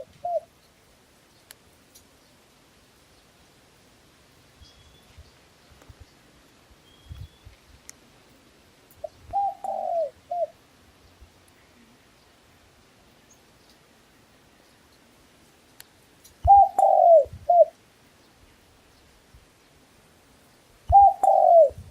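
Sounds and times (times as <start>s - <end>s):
dove cooing: 0.0s - 0.5s, 9.0s - 10.6s, 16.4s - 17.8s, 20.9s - 21.9s.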